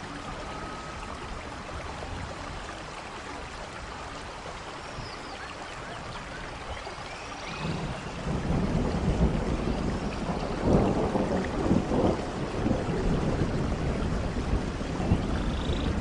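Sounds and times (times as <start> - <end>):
steady rain: 0.0 - 16.0
thunder rumbling: 7.5 - 16.0.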